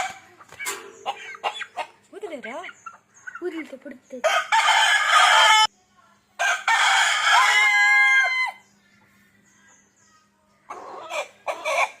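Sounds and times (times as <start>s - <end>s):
rooster crowing: 4.2s - 5.7s, 6.4s - 8.6s.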